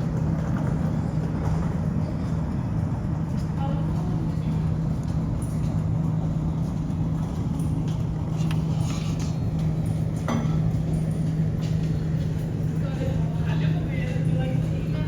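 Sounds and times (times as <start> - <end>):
low vehicle hum: 0.0 - 15.0.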